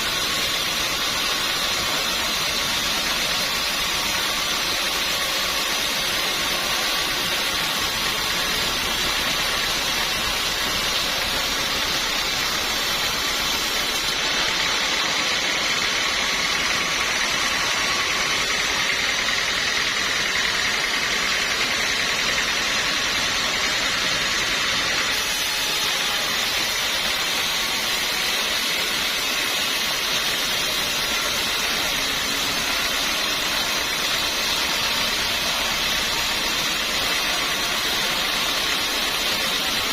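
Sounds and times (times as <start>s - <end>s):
saw whine: 0.0s - 39.9s
sawmill machinery running: 0.0s - 39.9s.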